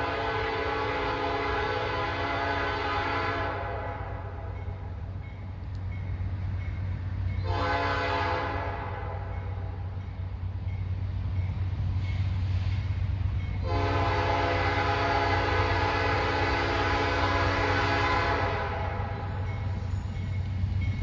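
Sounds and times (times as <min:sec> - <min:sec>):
locomotive air horn blast: 0:00.0 - 0:04.5, 0:07.4 - 0:09.7, 0:13.6 - 0:19.4
train rumbling past: 0:00.0 - 0:21.0.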